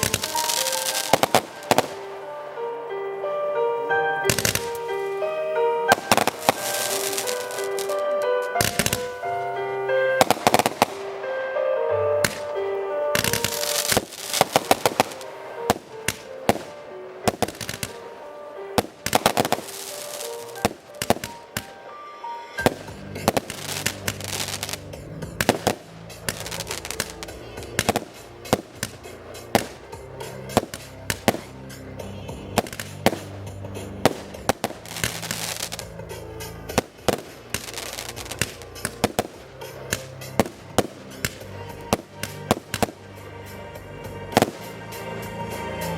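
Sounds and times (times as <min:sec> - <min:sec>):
fireworks bangs and crackles: 0:00.0 - 0:02.7, 0:04.2 - 0:11.4, 0:12.1 - 0:45.9
loud music: 0:00.0 - 0:45.9.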